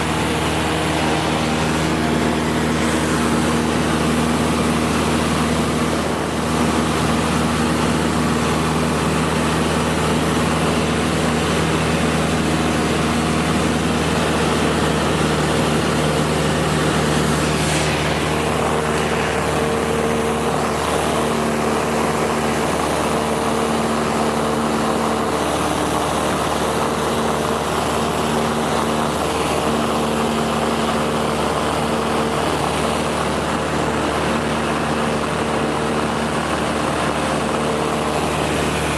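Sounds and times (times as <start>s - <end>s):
light aircraft engine droning: 0.0s - 38.9s.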